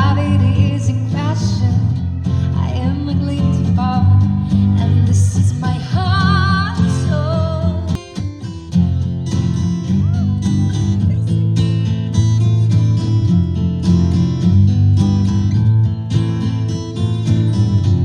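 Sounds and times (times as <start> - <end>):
person singing with vibrato: 0.0 - 8.0
strummed acoustic guitar: 0.0 - 18.0.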